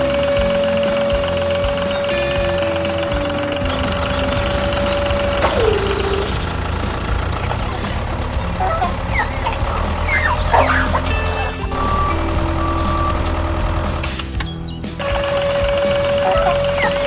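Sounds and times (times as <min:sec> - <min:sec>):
bird clucking calls: 0:00.0 - 0:17.0
engine hum: 0:00.0 - 0:17.0
bird swooping call: 0:08.6 - 0:13.4, 0:16.1 - 0:17.0.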